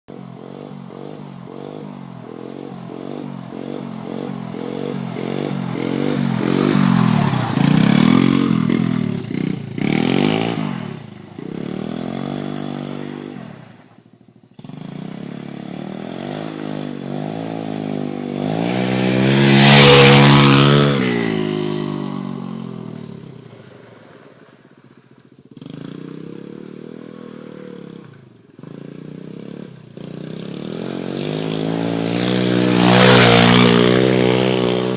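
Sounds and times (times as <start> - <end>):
motorbike engine revving: 0.1 - 23.9, 25.2 - 34.9.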